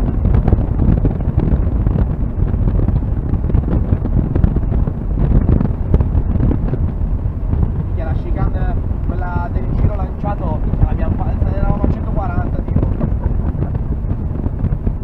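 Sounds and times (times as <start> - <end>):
car engine at speed: 0.0 - 15.0
wind buffeting microphone: 0.0 - 15.0.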